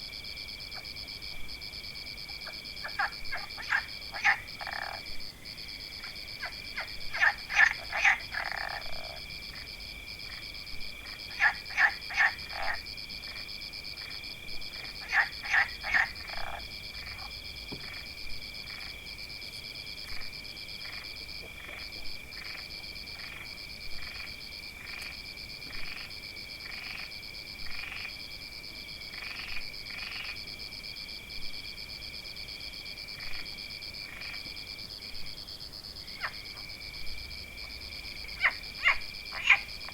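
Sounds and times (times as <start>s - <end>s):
frogs croaking: 0.0s - 39.9s.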